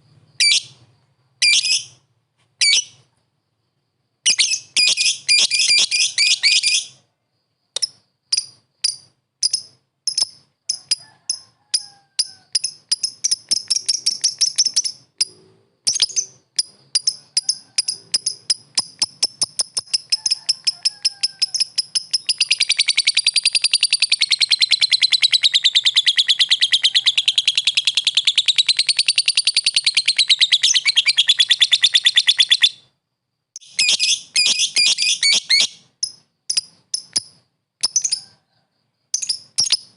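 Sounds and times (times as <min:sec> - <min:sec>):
lovebird chattering: 0:12.5 - 0:32.9, 0:33.6 - 0:38.3.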